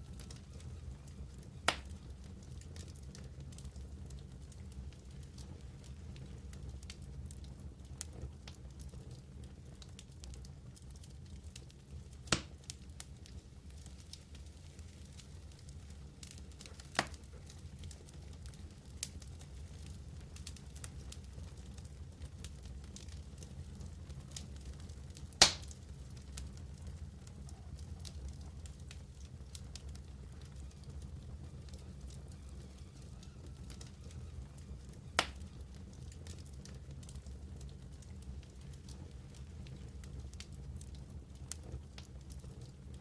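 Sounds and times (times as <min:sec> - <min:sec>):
wood fire crackling: 0:00.0 - 0:43.0
sharp pops of fire: 0:01.7 - 0:02.0, 0:12.2 - 0:12.8, 0:16.2 - 0:17.4, 0:25.1 - 0:25.9, 0:34.8 - 0:35.5
loud sharp pop: 0:12.3 - 0:12.5, 0:25.4 - 0:25.7.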